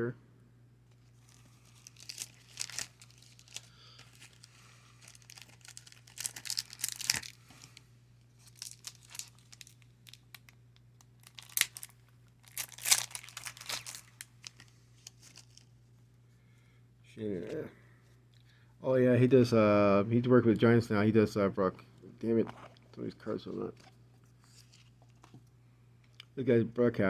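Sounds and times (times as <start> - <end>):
card packs crinkling and rustling: 1.0 - 7.8, 8.4 - 15.7, 22.2 - 25.4.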